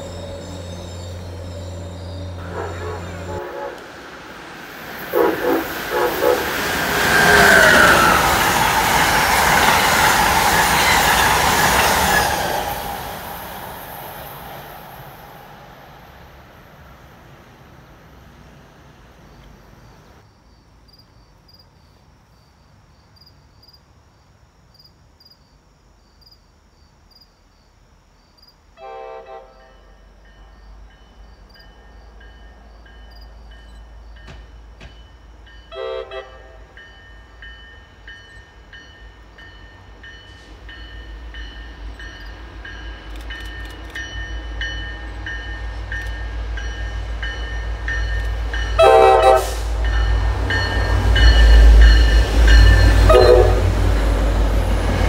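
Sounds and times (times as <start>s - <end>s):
distant train horn blasts: 0.0s - 4.3s, 5.0s - 8.2s, 28.8s - 30.6s, 35.6s - 36.9s, 48.6s - 53.9s
passenger train passing: 0.0s - 20.2s, 28.7s - 55.0s.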